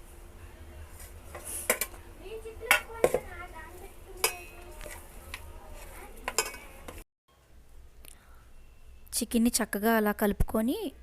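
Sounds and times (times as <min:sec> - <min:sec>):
metal spoon clinking on cookware: 0:04.2 - 0:04.8, 0:06.2 - 0:07.0.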